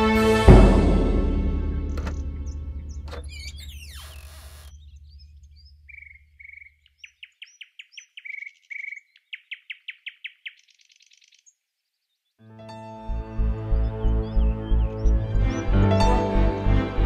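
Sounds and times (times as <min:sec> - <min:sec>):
music: 0:00.0 - 0:03.2, 0:12.4 - 0:17.0
birds chirping and trilling: 0:01.9 - 0:12.4, 0:13.0 - 0:16.2.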